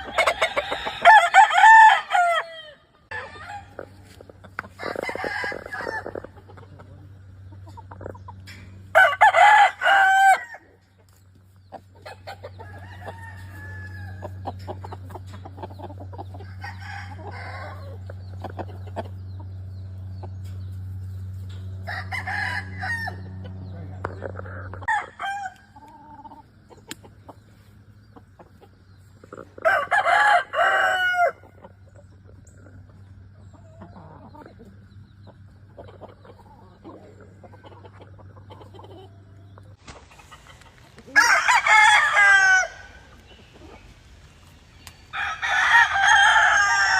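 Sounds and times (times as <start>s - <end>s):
rooster crowing: 0.0s - 3.8s, 4.8s - 6.2s, 8.9s - 10.7s, 12.6s - 14.3s, 21.9s - 23.3s, 24.8s - 25.8s, 29.6s - 31.4s, 41.1s - 43.1s, 45.1s - 46.9s.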